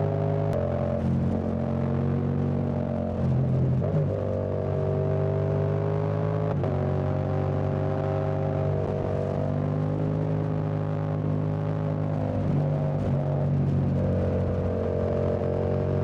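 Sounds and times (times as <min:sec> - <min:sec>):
motorcycle engine running: 0:06.8 - 0:16.0.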